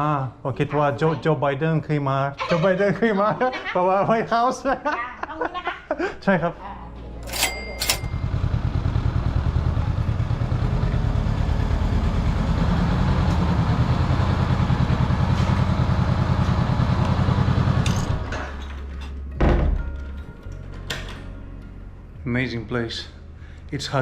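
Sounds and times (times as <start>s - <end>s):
motorcycle engine idling: 8.1s - 17.8s.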